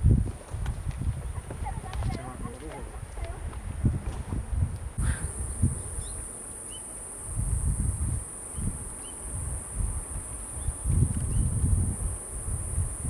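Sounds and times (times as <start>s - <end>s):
wind gusts on microphone: 0.0s - 6.4s, 7.2s - 13.0s
insects trilling: 5.0s - 13.0s.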